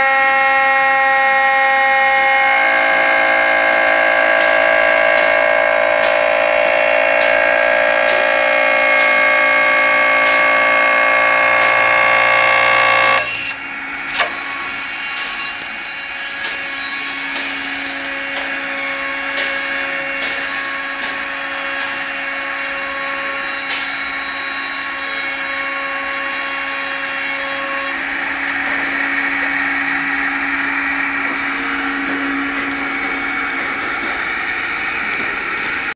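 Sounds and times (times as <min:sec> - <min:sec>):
hissy wood cutting sound: 0:00.0 - 0:35.9
spindle whine: 0:02.1 - 0:13.7.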